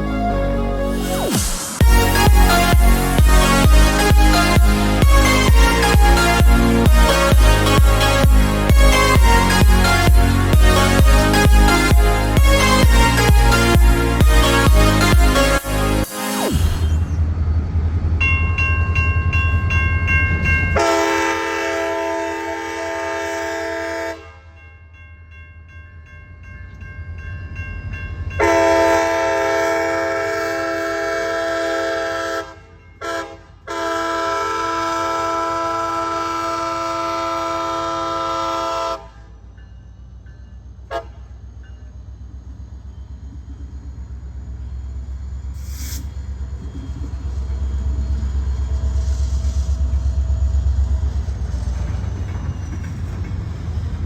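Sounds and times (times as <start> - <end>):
diesel engine rumble: 0.0 - 20.6, 41.3 - 54.0
crossing bell ringing: 1.8 - 16.1, 18.1 - 22.0, 23.8 - 30.4, 31.3 - 34.2, 39.4 - 45.5
locomotive air horn blasts: 20.8 - 24.5, 28.4 - 39.3, 40.9 - 41.3.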